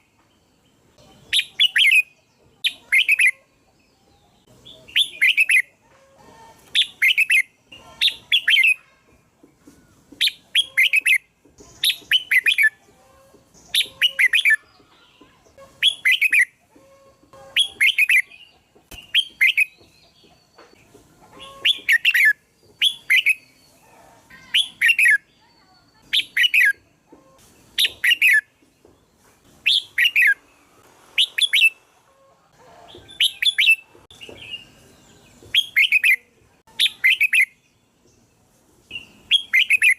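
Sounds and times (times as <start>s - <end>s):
bulbul singing warbled phrases: 1.0s - 5.8s, 6.7s - 9.1s, 10.2s - 12.9s, 13.5s - 16.6s, 17.5s - 19.9s, 21.4s - 26.9s, 35.5s - 37.7s, 38.9s - 39.9s.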